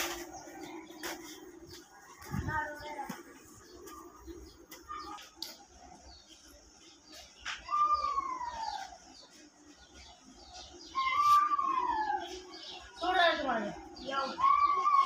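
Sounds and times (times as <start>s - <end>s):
bird whistling downward calls: 10.9s - 12.4s.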